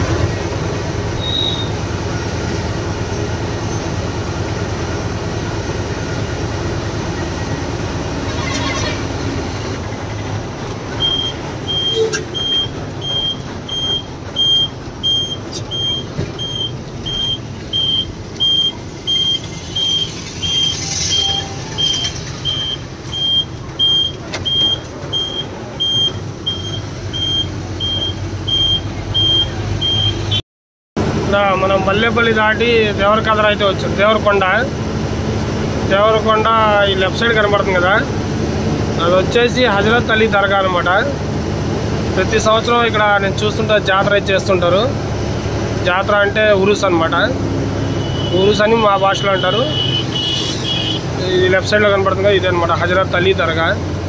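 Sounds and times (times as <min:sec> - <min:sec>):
truck engine running: 0:00.0 - 0:30.4, 0:31.0 - 0:54.0
high electronic beep: 0:11.0 - 0:30.4.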